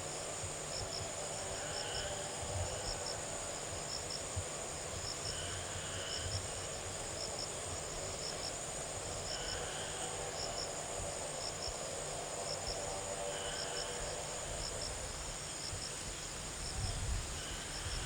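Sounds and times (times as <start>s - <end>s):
fainter lower insect call: 0.7s - 18.0s
insects chirring: 0.7s - 18.0s.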